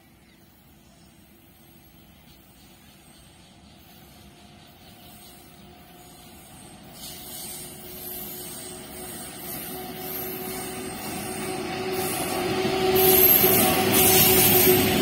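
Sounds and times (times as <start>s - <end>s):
train approaching on track: 0.0s - 15.0s.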